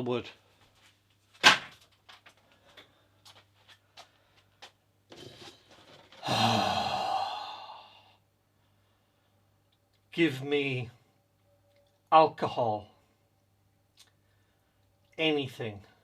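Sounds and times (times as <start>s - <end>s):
man sighing loudly: 6.2s - 8.2s.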